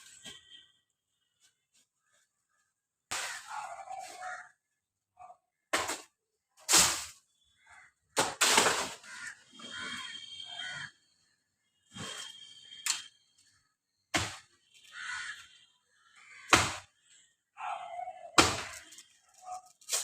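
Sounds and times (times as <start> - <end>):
sharp knocks and cracks of tree: 14.1 - 14.6, 16.5 - 17.0, 18.4 - 19.0.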